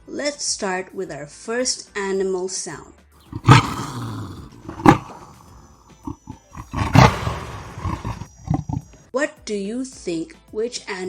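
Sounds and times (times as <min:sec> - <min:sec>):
leopard roaring: 0:03.2 - 0:08.9
leopard growling: 0:03.2 - 0:09.0.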